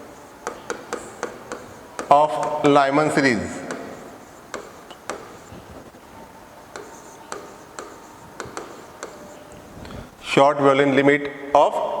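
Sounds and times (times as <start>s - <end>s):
pen tapping and scratching: 0.0s - 10.0s.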